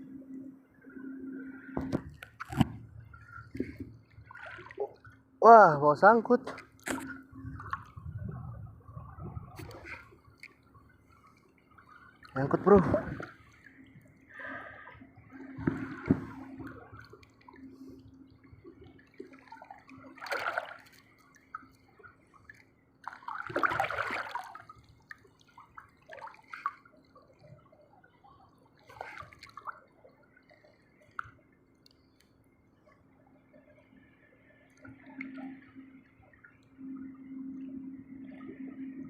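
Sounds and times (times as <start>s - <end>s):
water splashing and sloshing: 0.0s - 39.0s.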